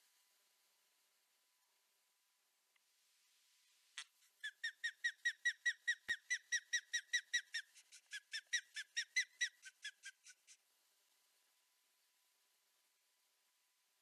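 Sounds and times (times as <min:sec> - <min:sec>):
osprey alarm calls: 0:04.4 - 0:10.5.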